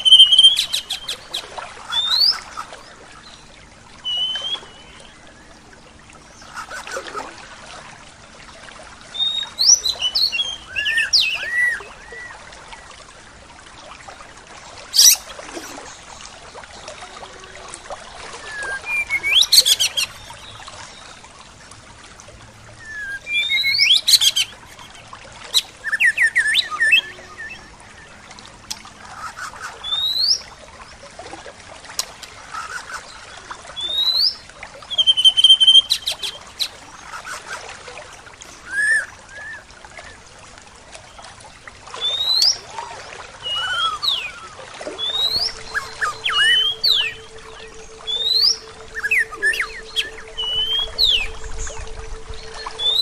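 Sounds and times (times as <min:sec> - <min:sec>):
songbirds chirping and whistling: 0:00.0 - 0:07.1, 0:09.1 - 0:13.0, 0:15.0 - 0:21.2, 0:22.8 - 0:30.5, 0:33.8 - 0:37.7, 0:42.0 - 0:53.0.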